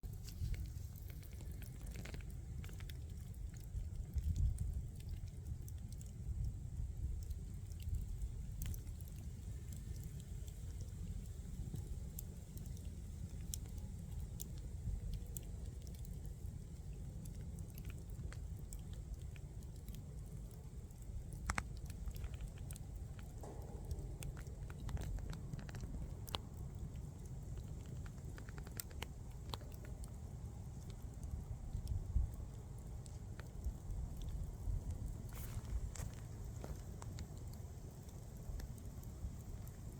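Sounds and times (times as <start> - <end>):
bonfire crackling: 0.0 - 39.9
fire low rumble: 0.0 - 39.9.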